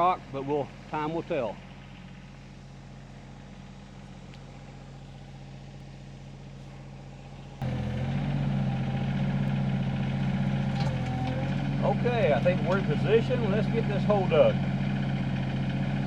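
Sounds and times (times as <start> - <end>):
excavator diesel engine revving: 7.6 - 16.0.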